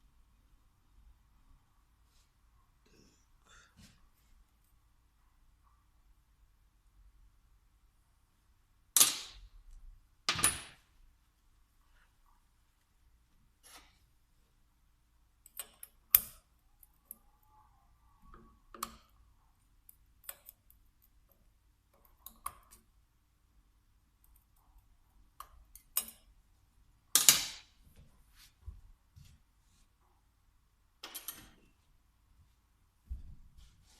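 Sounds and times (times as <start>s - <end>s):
tools clicking and knocking: 15.4s - 17.2s, 25.4s - 26.3s.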